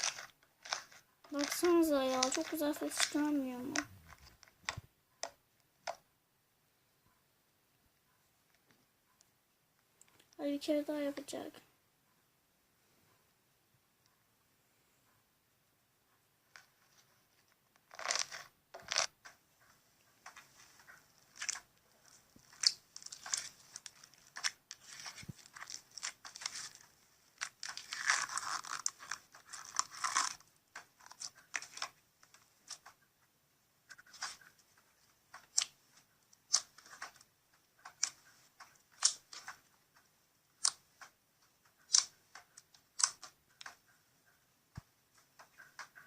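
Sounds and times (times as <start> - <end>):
slime crackling and popping: 0.0 - 4.3, 22.4 - 33.0, 36.4 - 37.2, 38.9 - 39.6.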